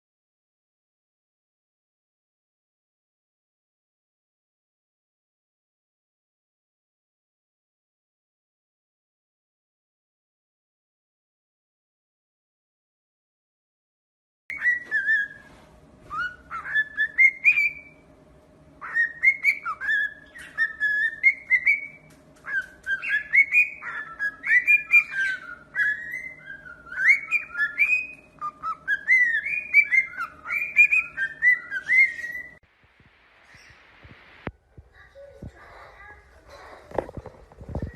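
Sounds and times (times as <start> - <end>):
parrot whistling: 14.5 - 15.5, 16.1 - 18.0, 18.8 - 32.6.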